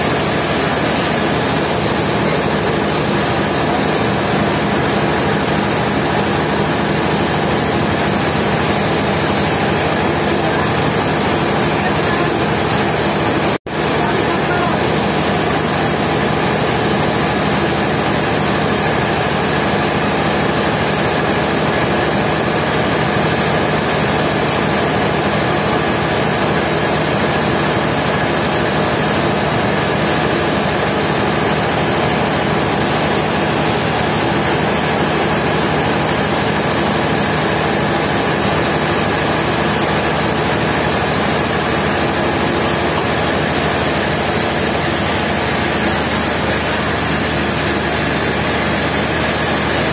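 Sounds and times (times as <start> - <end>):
sawmill machinery drone: 0.0 - 49.9.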